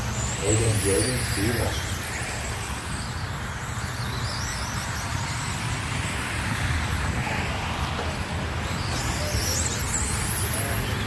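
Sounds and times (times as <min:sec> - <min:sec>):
radio-controlled car motors whining: 0:00.0 - 0:11.0.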